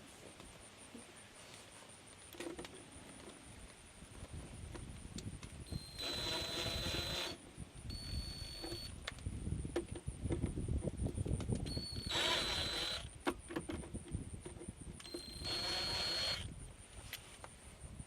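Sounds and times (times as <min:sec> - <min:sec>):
cordless drill whirring: 0:05.7 - 0:08.9, 0:11.7 - 0:13.1, 0:15.0 - 0:16.5.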